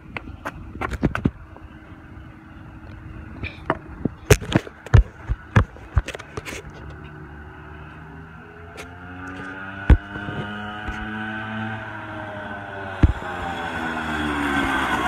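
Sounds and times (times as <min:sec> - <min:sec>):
small engine humming: 0:01.3 - 0:15.0
sharp knocks and thumps: 0:03.7 - 0:06.7, 0:09.3 - 0:11.2, 0:13.0 - 0:13.2.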